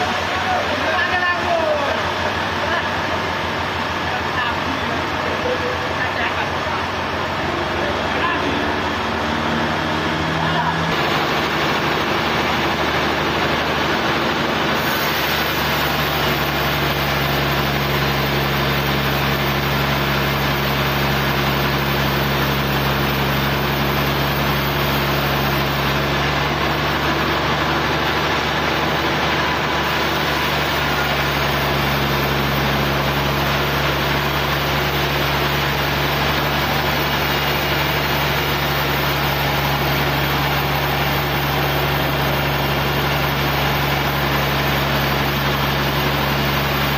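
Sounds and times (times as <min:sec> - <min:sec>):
engine running steadily: 0:00.0 - 0:46.9.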